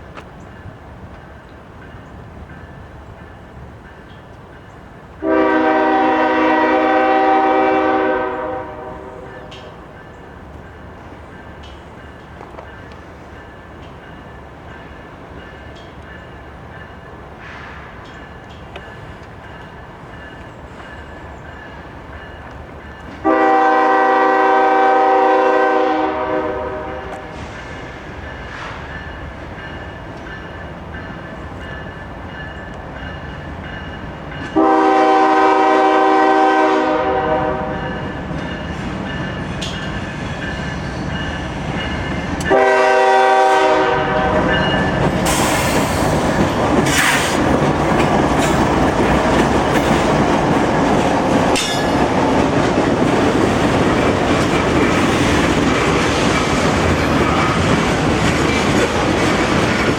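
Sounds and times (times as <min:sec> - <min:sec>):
train wheel and rail noise: 0:00.0 - 0:59.9
locomotive air horn: 0:05.2 - 0:09.8, 0:23.2 - 0:27.5, 0:34.6 - 0:38.0, 0:42.5 - 0:44.6.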